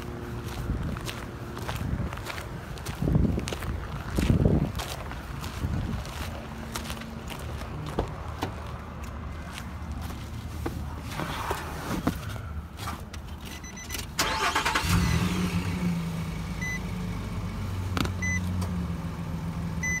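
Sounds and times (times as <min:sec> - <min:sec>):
footsteps and scuffs: 0:00.0 - 0:13.6
car engine cranking and idling: 0:00.0 - 0:20.0.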